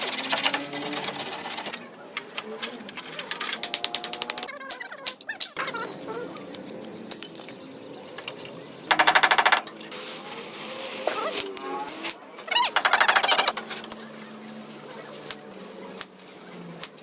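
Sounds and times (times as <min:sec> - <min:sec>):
power tool hammering sheet metal: 0:08.9 - 0:09.7.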